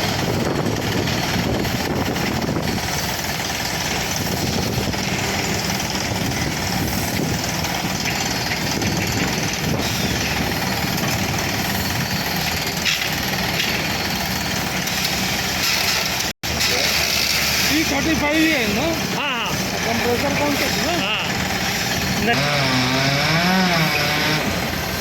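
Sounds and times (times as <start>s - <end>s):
diesel air compressor running: 0.0s - 25.0s
rock drilling rig: 0.0s - 25.0s.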